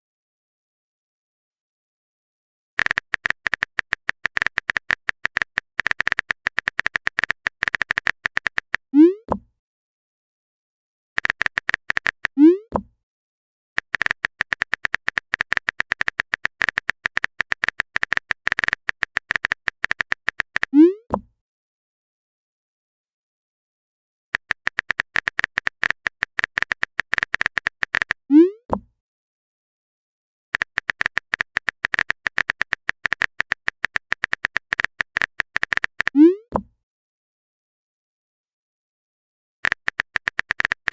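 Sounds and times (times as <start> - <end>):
phone keyboard typing taps: 2.8 - 9.5, 11.2 - 12.9, 13.8 - 21.3, 24.4 - 28.9, 30.6 - 36.7, 39.6 - 40.9
electronic key clicks: 39.6 - 40.9.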